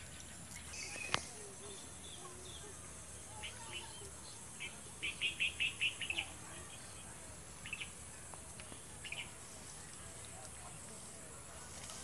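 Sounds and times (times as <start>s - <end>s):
small bird chirping: 0.0s - 8.0s, 9.0s - 9.4s.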